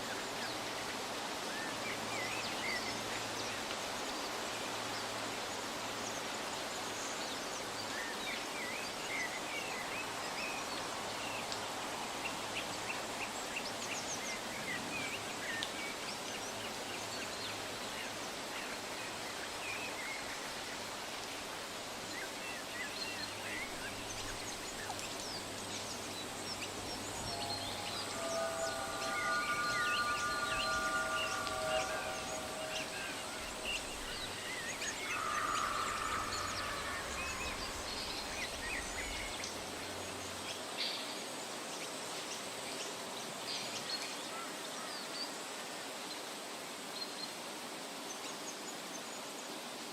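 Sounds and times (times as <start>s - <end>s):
steady background hiss: 0.0s - 49.9s
held chime tones: 27.3s - 34.2s.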